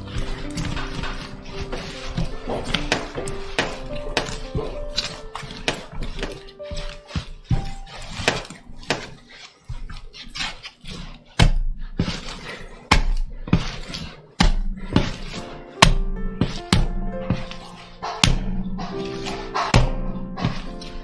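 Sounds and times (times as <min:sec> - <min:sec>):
background music: 0:00.0 - 0:09.7, 0:13.5 - 0:21.0.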